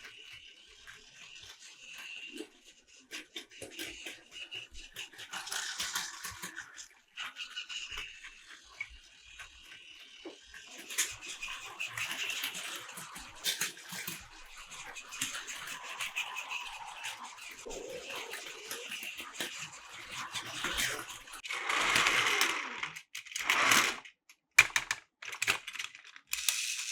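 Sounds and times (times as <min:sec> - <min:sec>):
toy train wheels clicking and rattling: 0:00.0 - 0:26.9
small motor whirring: 0:17.7 - 0:24.0.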